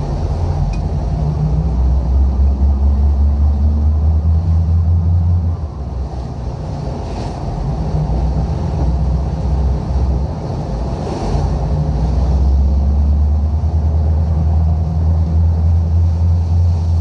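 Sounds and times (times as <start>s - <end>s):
sea rumble: 0.0s - 17.0s
storm wind: 0.0s - 17.0s.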